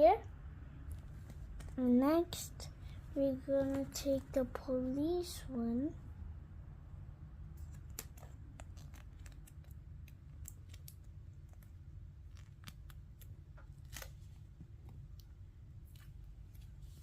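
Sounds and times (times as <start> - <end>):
low steady hum: 0.0 - 17.0
hands crinkling sticker sheet: 7.6 - 14.4.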